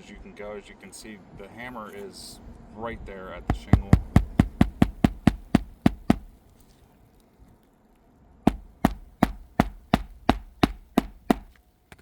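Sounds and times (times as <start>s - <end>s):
hammer driving nail into shingle: 3.5s - 6.4s, 8.5s - 12.0s.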